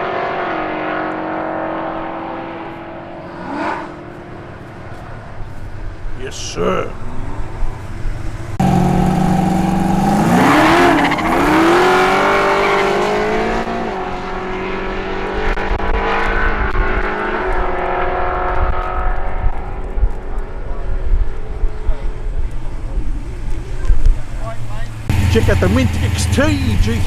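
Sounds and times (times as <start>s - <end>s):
car engine accelerating hard: 0.0s - 27.0s.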